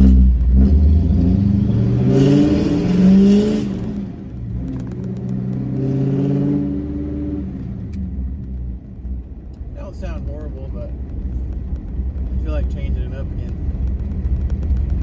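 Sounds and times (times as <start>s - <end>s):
truck engine revving: 0.0s - 8.0s.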